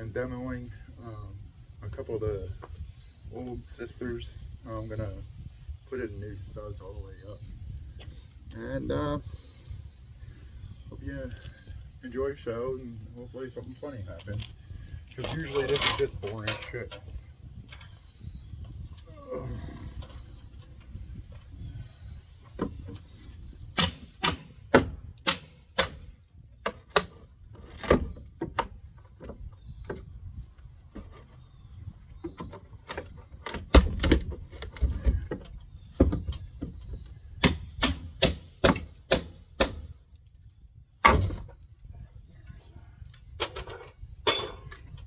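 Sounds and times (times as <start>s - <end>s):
hand tools striking wood: 23.8s - 27.2s, 37.4s - 39.9s.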